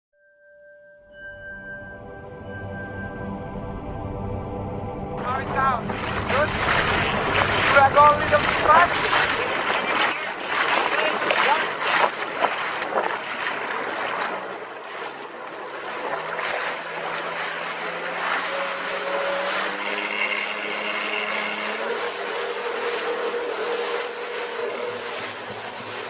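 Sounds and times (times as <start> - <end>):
jet ski engine: 2.4 - 26.0
water splashing against hull: 5.2 - 26.0.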